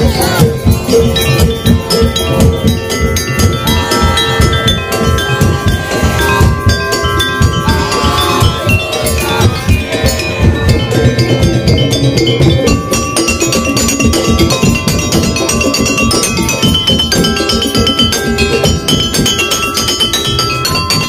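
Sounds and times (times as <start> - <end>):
fast drum rhythm: 0.0 - 21.0
melody holding long high notes: 0.0 - 21.0
ringing metal percussion: 0.0 - 21.0.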